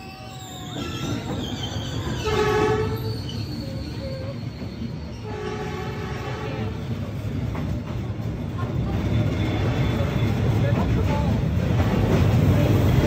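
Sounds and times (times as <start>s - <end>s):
train wheels rumbling: 0.0s - 13.0s
train horn blasts: 2.2s - 3.1s, 5.2s - 6.8s.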